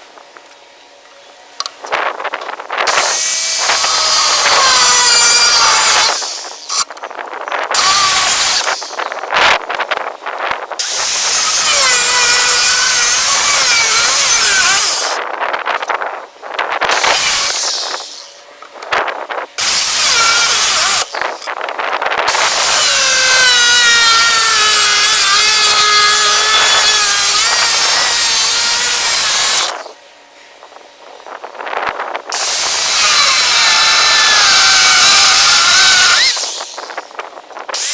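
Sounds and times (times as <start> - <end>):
power tool whining on steel: 2.8 - 7.0, 7.7 - 9.3, 10.8 - 15.2, 16.9 - 18.5, 19.6 - 21.5, 22.3 - 30.0, 32.3 - 37.9.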